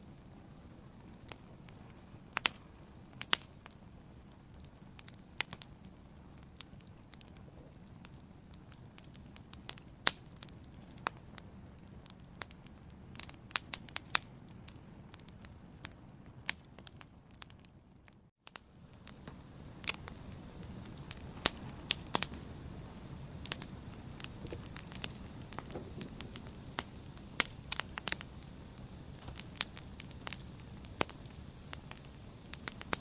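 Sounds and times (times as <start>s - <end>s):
low steady fire hiss: 0.0s - 33.0s
wood fire crackling and popping: 0.0s - 33.0s.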